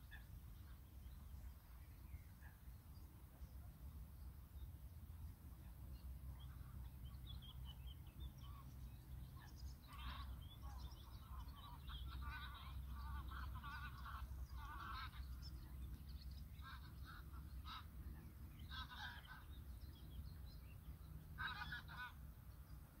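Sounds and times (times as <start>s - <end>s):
steady low rumble: 0.0s - 23.0s
birds calling: 6.4s - 23.0s.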